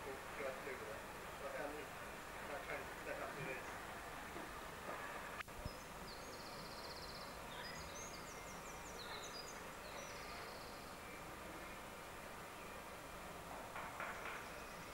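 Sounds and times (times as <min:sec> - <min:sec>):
background hiss: 0:00.0 - 0:14.9
small birds chirping: 0:04.9 - 0:14.9.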